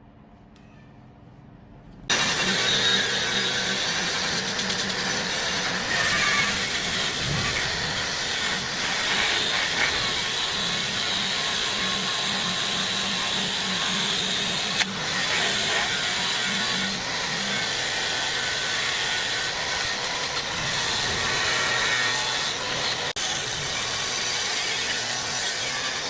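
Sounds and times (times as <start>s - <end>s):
hissing machine noise: 2.1s - 26.0s
low pulsing motor hum: 4.8s - 12.6s.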